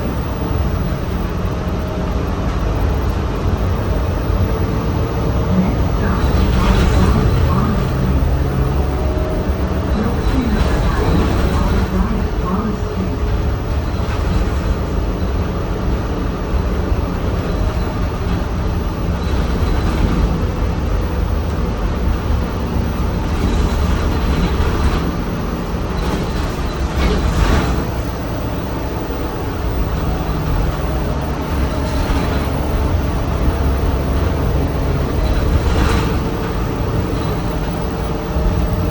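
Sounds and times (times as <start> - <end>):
bus engine and road rumble: 0.0 - 38.9.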